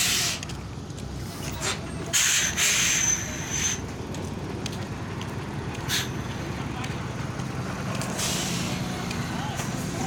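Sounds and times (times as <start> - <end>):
truck air brakes hissing: 0.0 - 0.6, 1.2 - 3.9, 5.8 - 6.3, 8.0 - 10.0
low engine rumble: 0.0 - 10.0.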